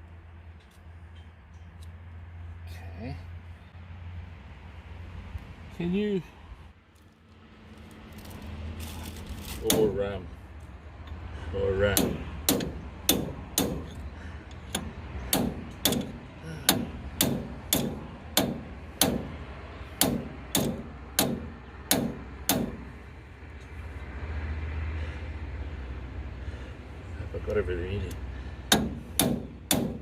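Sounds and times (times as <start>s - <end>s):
hammer striking steel: 12.0s - 14.0s, 14.7s - 19.3s, 20.0s - 22.8s, 28.7s - 30.0s.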